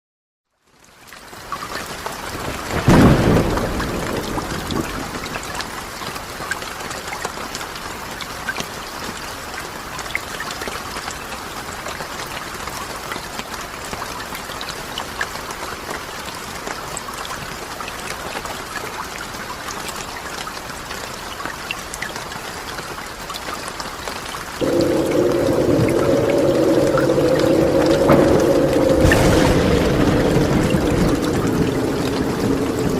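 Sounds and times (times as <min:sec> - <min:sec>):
steady rain falling: 0:00.5 - 0:32.9
thunder clap rumbling: 0:02.5 - 0:05.6, 0:24.6 - 0:32.9
raindrops ticking: 0:19.9 - 0:32.9.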